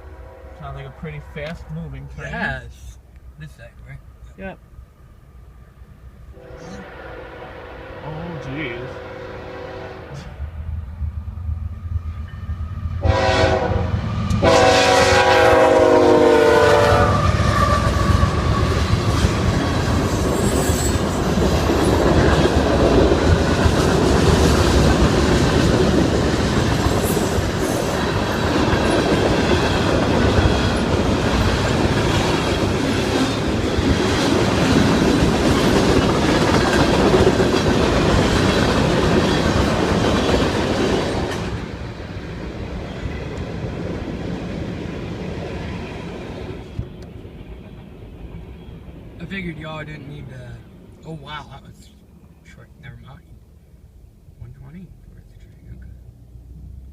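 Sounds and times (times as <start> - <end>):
train horn blasts: 0.0 - 2.2, 6.3 - 10.4, 13.0 - 18.6
train passing rumble: 0.0 - 56.9.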